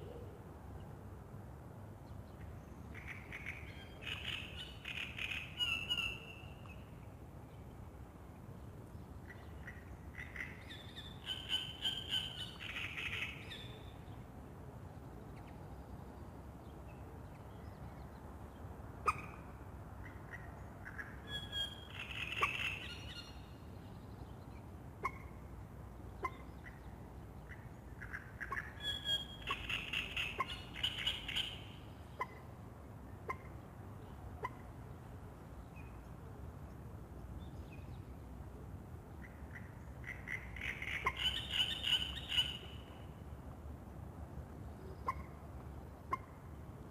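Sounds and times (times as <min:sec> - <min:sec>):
low background noise: 0:00.0 - 0:46.9.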